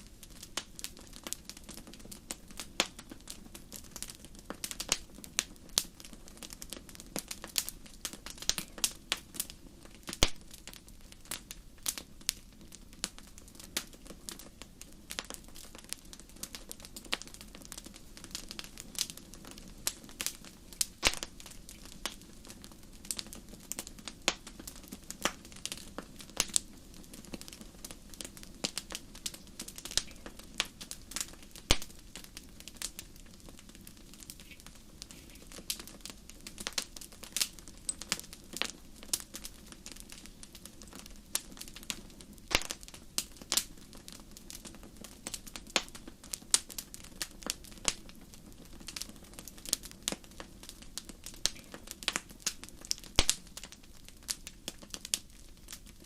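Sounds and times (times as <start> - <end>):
low rumble of flame: 0.0 - 56.0
wood fire crackling and popping: 0.0 - 56.0.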